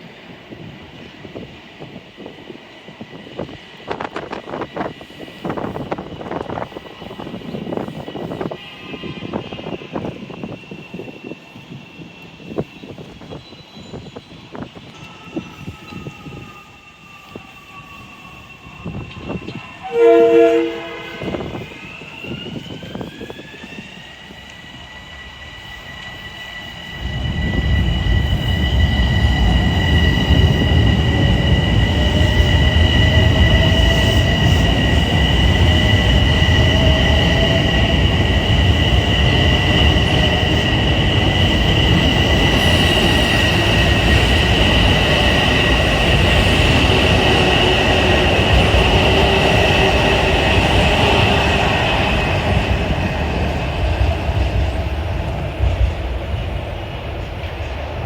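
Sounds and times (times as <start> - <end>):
train wheels rumbling on rails: 0.0 - 58.0
train horn blast: 19.8 - 21.7.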